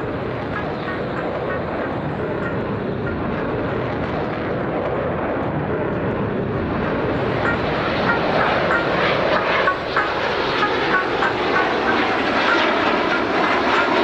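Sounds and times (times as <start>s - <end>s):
fighter jet engine noise: 0.0s - 14.0s.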